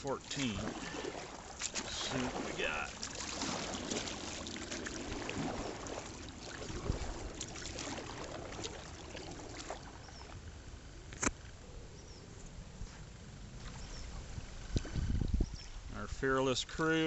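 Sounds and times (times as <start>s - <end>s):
water rushing and splashing: 0.0s - 10.6s.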